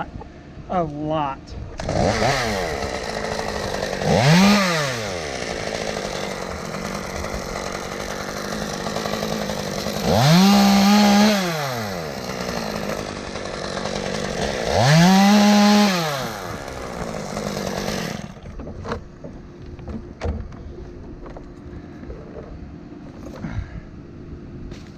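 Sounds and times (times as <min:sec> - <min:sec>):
chainsaw engine revving: 0:01.8 - 0:18.6.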